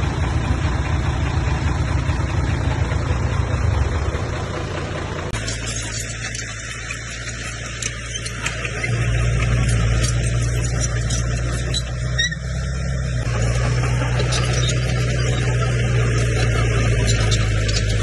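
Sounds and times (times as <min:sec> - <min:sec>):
bulldozer diesel engine drone: 0:00.0 - 0:18.0
short squeak: 0:05.4 - 0:12.8, 0:14.0 - 0:18.0.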